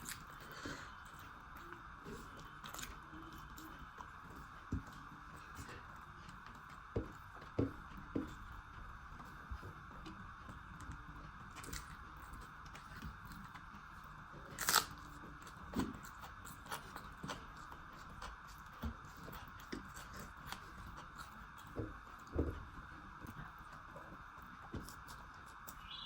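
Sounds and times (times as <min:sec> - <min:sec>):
person chewing: 0:00.0 - 0:25.9
crunch or smack while eating: 0:14.5 - 0:17.4.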